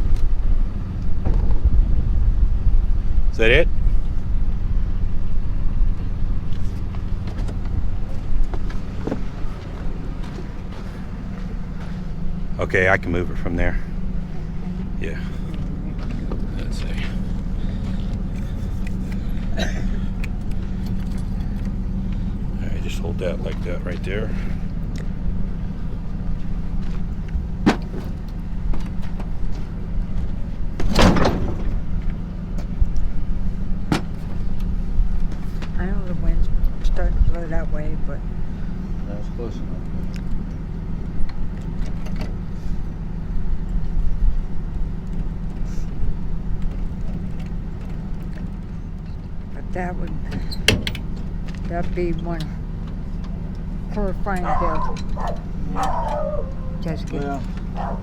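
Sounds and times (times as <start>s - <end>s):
faint engine knocks: 0.0s - 3.1s, 3.8s - 58.0s
truck engine idling: 0.0s - 58.0s.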